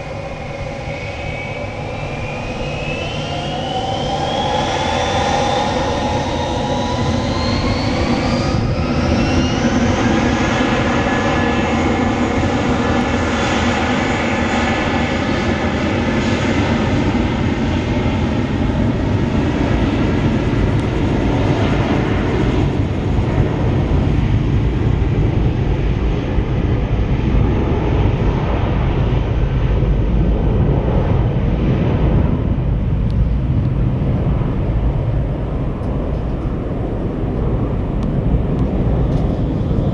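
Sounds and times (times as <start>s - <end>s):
low engine rumble: 0.0s - 10.0s, 29.7s - 39.9s
jet engines whining: 0.0s - 39.9s.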